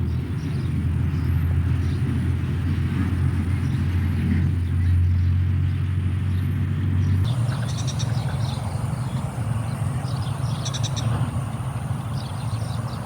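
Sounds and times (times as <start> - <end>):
steady low rumble: 7.0 - 13.0
small animals chirping: 7.3 - 13.0.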